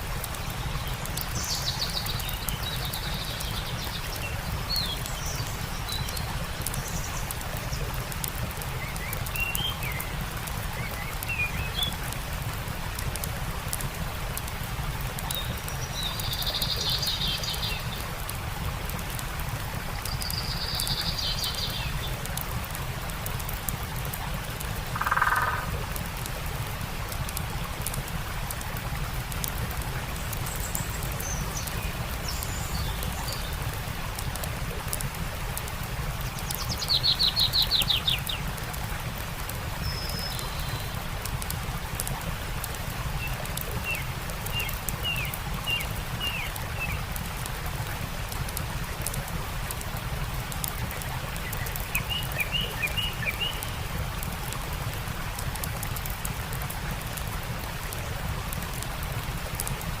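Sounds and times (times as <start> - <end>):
campfire crackling: 0.0 - 60.0
stream rushing: 0.0 - 60.0
songbirds calling: 0.2 - 12.5, 15.2 - 18.2, 19.9 - 22.7, 24.7 - 26.0, 30.0 - 34.3, 36.1 - 38.8, 39.7 - 41.0, 43.2 - 47.2, 50.6 - 54.0.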